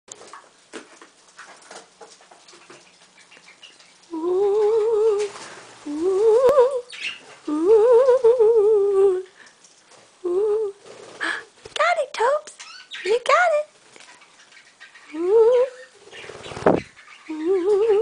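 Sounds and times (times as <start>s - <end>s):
person humming: 4.1s - 6.8s, 7.5s - 9.4s, 10.2s - 11.4s, 15.1s - 15.7s, 17.3s - 18.0s.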